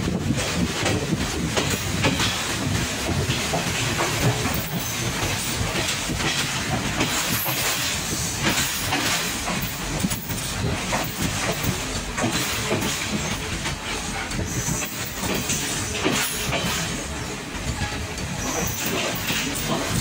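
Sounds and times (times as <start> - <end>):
train rumbling and rattling: 0.0 - 20.0.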